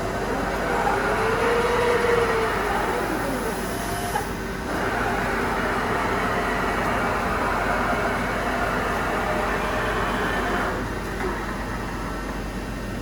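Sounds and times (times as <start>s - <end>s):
machine whirring: 0.0s - 12.2s.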